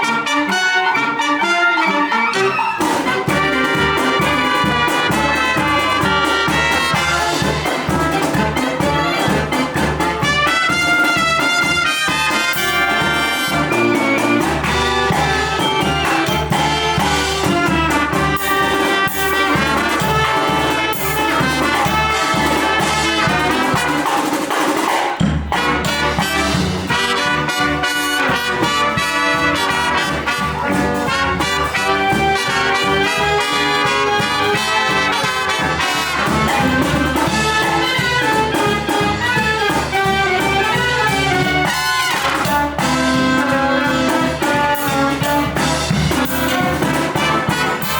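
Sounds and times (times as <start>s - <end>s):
brass band playing: 0.0s - 47.9s.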